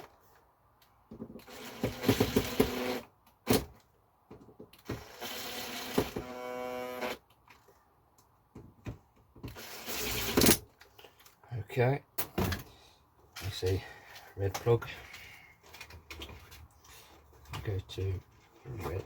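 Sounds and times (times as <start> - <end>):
screwdriver whirring: 1.4 - 3.1, 5.0 - 7.2, 9.6 - 10.6.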